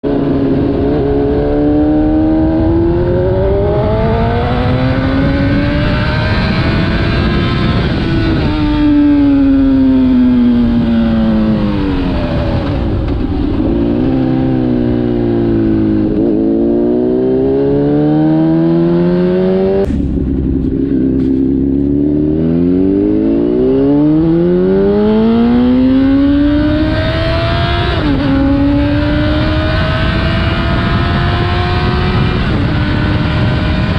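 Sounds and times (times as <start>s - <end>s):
motorcycle engine accelerating: 0.0s - 33.9s.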